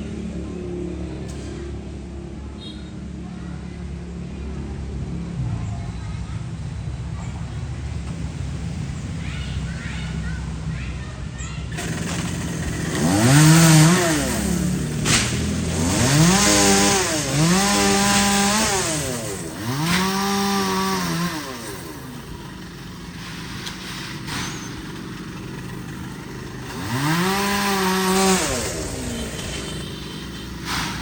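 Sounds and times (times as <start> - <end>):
chainsaw revving: 11.7 - 31.0.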